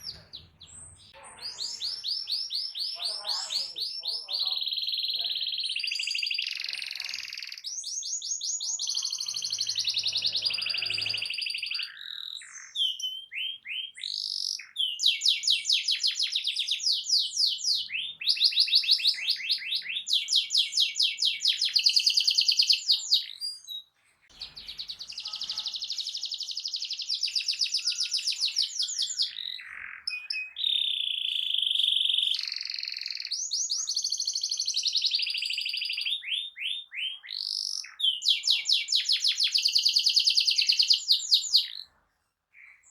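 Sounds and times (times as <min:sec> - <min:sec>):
canary singing in trills: 0:00.0 - 0:42.9.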